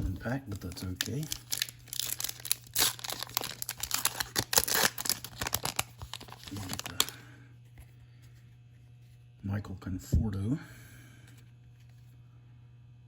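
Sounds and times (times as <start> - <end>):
foil wrapper tearing and crinkling: 0.5 - 7.2.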